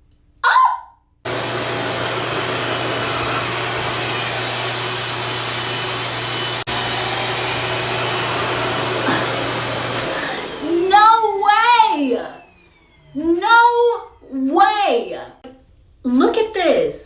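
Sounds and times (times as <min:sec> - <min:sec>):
hair dryer running: 0:01.3 - 0:14.4.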